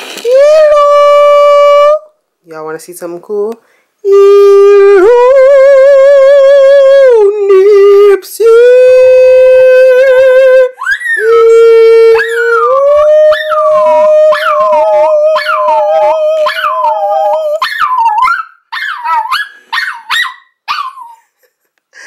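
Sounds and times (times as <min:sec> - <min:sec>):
dog howling and yipping: 0:10.8 - 0:21.2.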